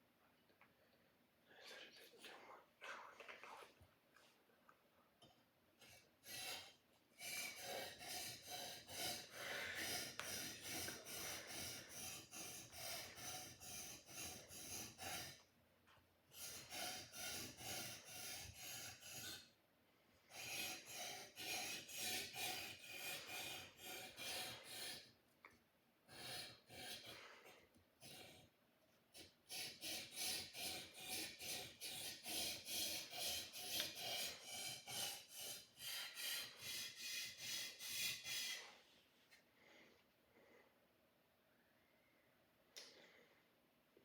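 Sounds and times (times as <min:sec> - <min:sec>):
blade rasping on sharpening stone: 0:07.3 - 0:15.4, 0:16.4 - 0:19.5.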